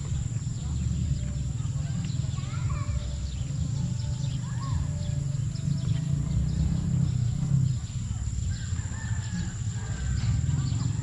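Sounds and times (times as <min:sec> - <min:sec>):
bird chirps: 0:00.0 - 0:11.0
high insect drone: 0:00.0 - 0:11.0.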